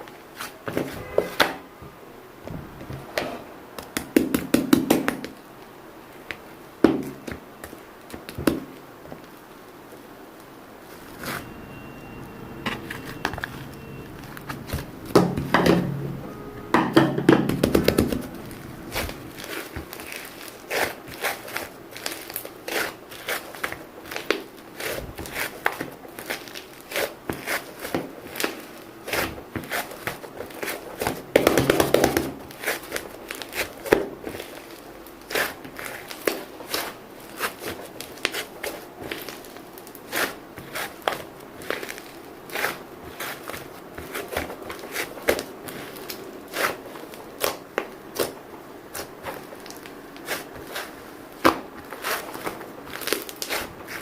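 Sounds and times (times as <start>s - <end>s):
crinkling and rustling: 12.2s - 16.0s, 17.4s - 54.0s.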